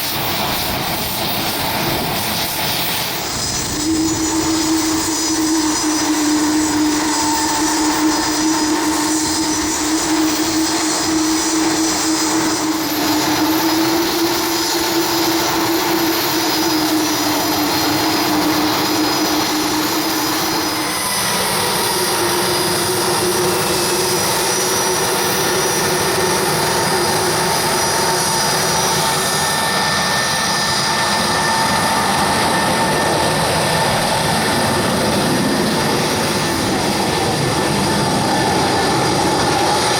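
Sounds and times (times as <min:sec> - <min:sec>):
jet engines roaring: 0:00.0 - 0:39.9.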